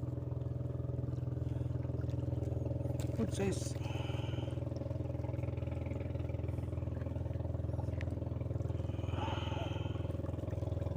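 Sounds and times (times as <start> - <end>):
engine running with pulsing hum: 0.0 - 10.9.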